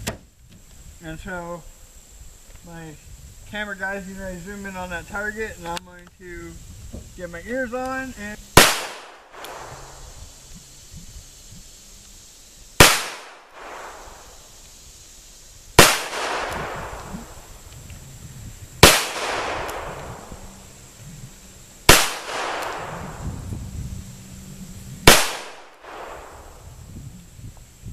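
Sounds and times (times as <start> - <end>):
revolver gunshots with echo: 8.6 - 10.1, 12.8 - 14.4, 15.8 - 17.5, 18.8 - 20.6, 21.9 - 23.2, 25.0 - 26.6.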